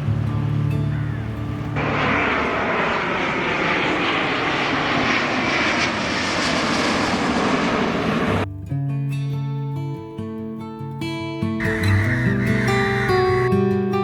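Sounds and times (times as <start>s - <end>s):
jet airliner flying overhead: 0.0s - 8.5s, 11.6s - 13.7s.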